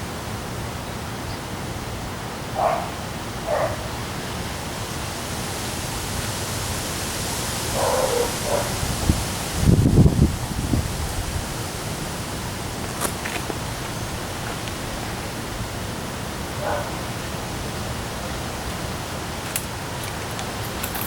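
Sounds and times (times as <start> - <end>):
strong wind and rain: 0.0 - 21.0
wind buffeting microphone: 7.8 - 19.9.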